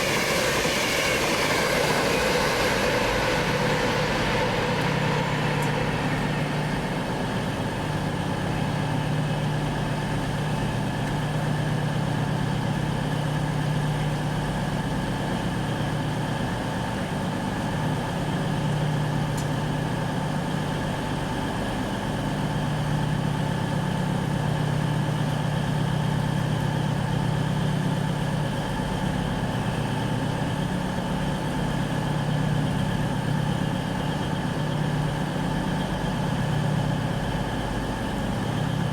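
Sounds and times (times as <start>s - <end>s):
diesel locomotive idling: 0.0s - 15.2s, 26.7s - 38.9s.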